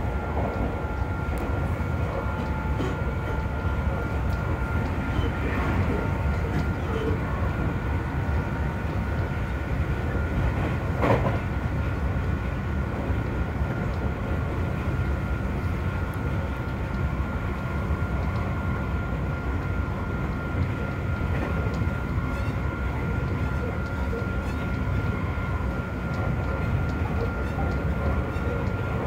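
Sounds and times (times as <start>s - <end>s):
rumble of train wheels on rail: 0.0s - 29.0s.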